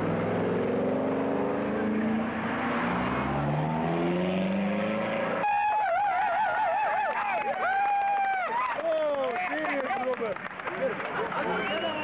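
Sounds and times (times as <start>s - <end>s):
car engines revving: 0.0s - 5.6s.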